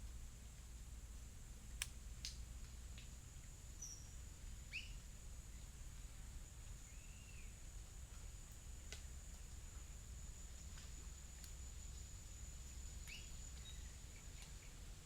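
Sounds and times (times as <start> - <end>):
bird chirps: 3.8 - 5.0, 13.0 - 13.9.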